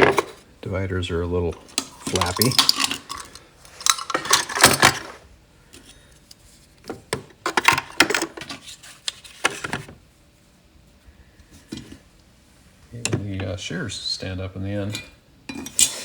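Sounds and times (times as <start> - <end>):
metal tools clinking in wooden box: 1.5 - 5.2.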